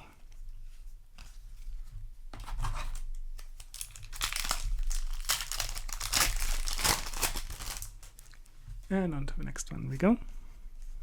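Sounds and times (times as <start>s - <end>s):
foil wrapper crinkling and tearing: 2.9s - 8.4s.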